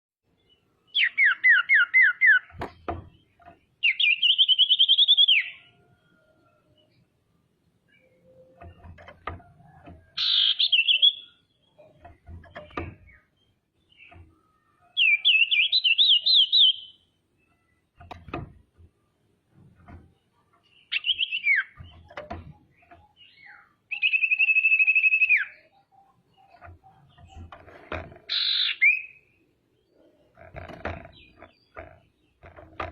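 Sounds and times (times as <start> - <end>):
bird calling with trills: 0.9 - 2.6, 3.8 - 5.8, 10.1 - 11.9, 13.9 - 17.7, 20.7 - 22.2, 22.8 - 27.4, 28.3 - 29.4
faint low knocks: 17.5 - 20.8, 21.8 - 23.2.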